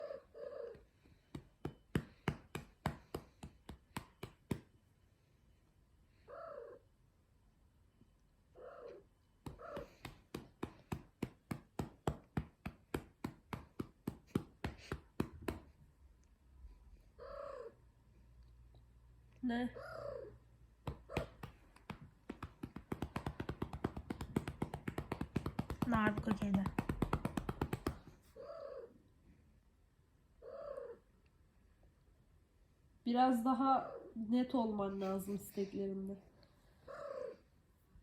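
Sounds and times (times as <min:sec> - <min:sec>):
hand patting cat: 0:01.3 - 0:04.8, 0:09.4 - 0:15.8, 0:20.8 - 0:28.3.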